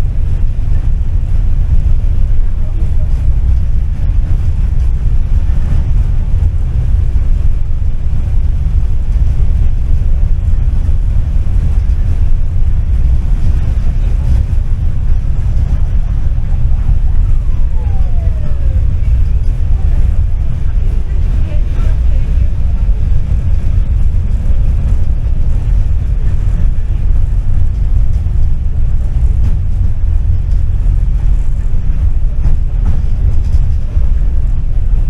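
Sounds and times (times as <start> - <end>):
falling whine: 0.0 - 33.8
tram rumbling on track: 0.0 - 35.0.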